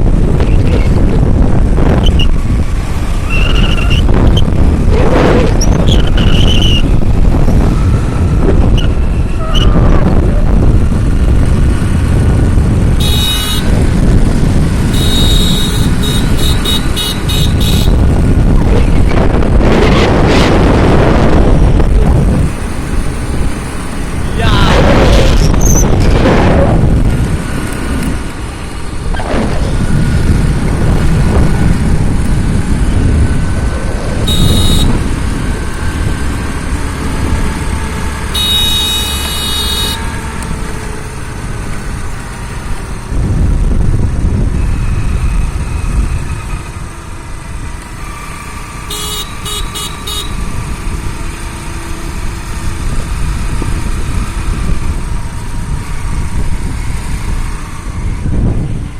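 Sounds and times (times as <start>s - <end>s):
moving vehicle rumble: 0.0s - 58.9s
vehicle horns honking: 13.0s - 13.8s, 14.8s - 18.2s, 34.2s - 35.2s, 38.2s - 40.2s, 48.8s - 50.5s.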